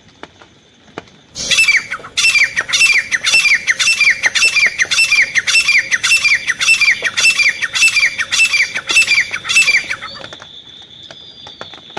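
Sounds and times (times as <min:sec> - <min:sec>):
bird calling ringing notes: 0:01.4 - 0:10.3.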